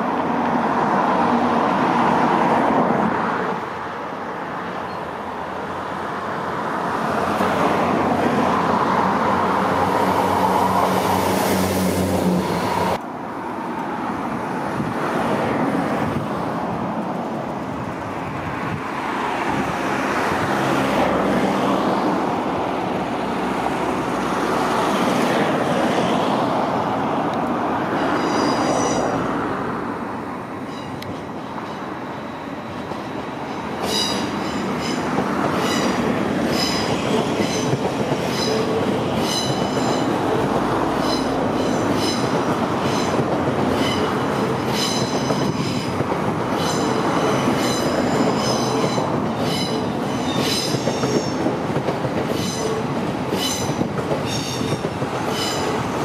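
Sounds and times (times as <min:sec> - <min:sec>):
high-speed train rushing past: 0:00.0 - 0:56.0
train engine drone: 0:00.0 - 0:56.0
high squeal: 0:28.0 - 0:29.2.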